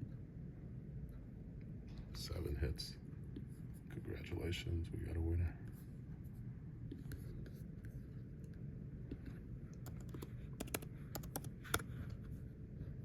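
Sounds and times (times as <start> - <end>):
computer keyboard typing: 9.8 - 11.9.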